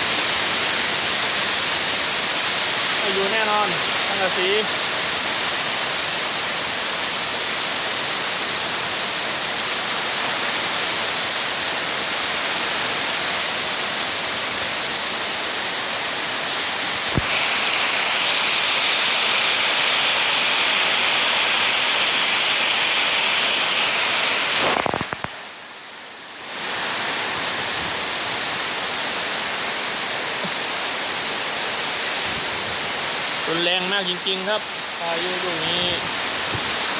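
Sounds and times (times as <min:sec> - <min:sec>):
heavy rain pouring: 0:00.0 - 0:36.9.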